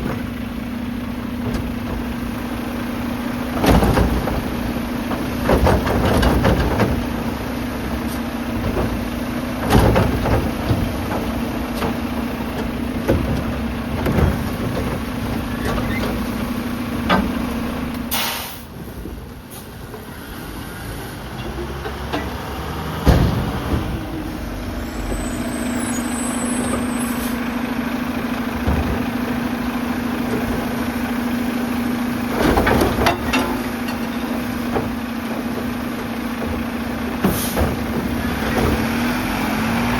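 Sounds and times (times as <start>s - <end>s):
garbage truck engine and hydraulics hum: 0.0s - 39.9s
air hiss: 18.1s - 18.7s.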